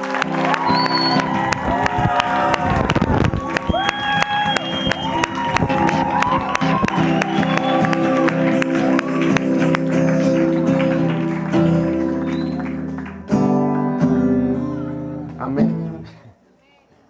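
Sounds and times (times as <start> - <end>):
crowd clapping: 0.0 - 13.9
acoustic guitar strumming chords: 4.8 - 16.0.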